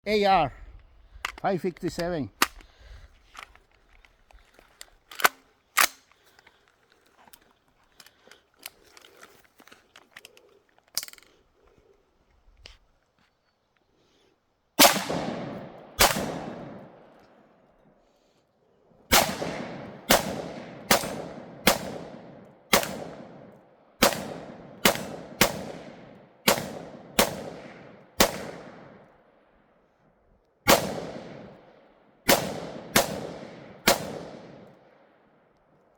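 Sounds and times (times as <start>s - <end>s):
rifle shots with long echo: 14.8s - 17.6s, 19.1s - 29.6s, 30.6s - 35.4s.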